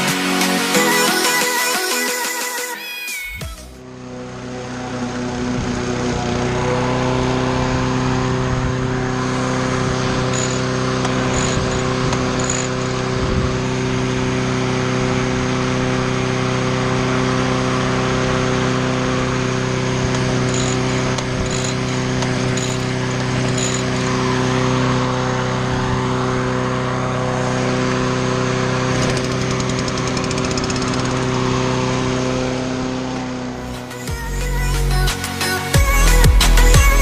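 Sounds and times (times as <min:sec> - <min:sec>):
small petrol engine running: 0:03.8 - 0:34.0.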